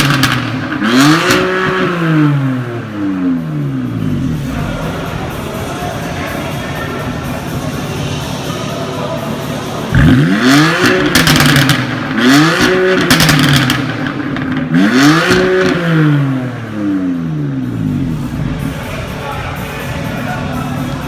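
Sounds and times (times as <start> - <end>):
car engine revving: 0.0 - 21.0
exhaust crackling: 0.0 - 21.0.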